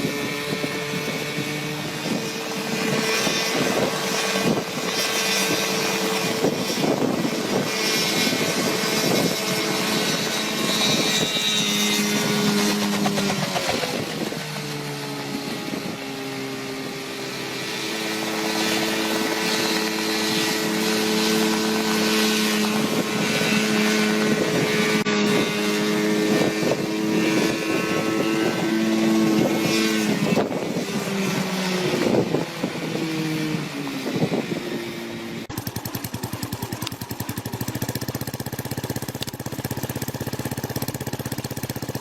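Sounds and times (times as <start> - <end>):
helicopter engine running: 0.0 - 42.0.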